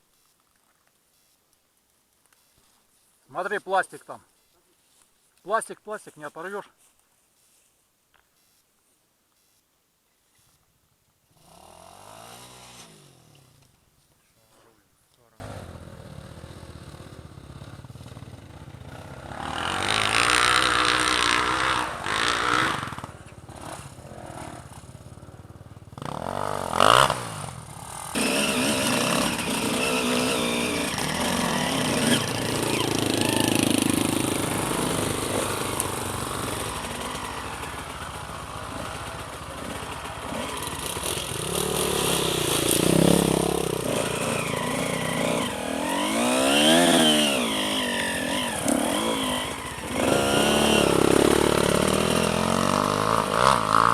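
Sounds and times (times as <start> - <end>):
motorcycle engine revving: 11.3 - 13.7, 15.4 - 53.9.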